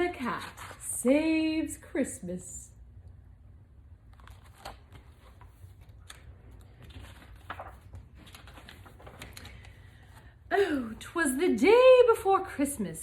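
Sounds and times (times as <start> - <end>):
paper rustling: 0.0 - 1.0, 4.1 - 10.4
paper clicks: 4.1 - 9.9.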